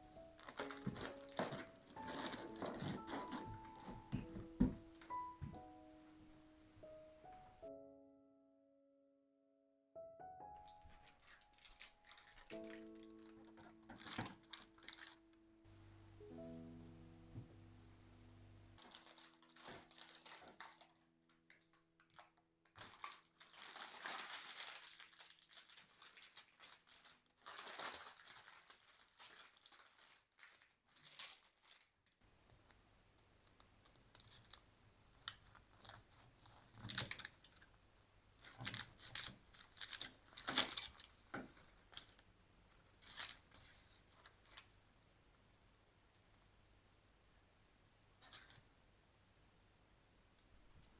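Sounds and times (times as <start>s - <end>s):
background music: 0.0s - 9.0s, 10.0s - 20.8s
crinkling and tearing: 0.1s - 5.3s, 10.6s - 15.4s, 18.8s - 32.2s, 33.5s - 37.8s, 38.4s - 44.7s.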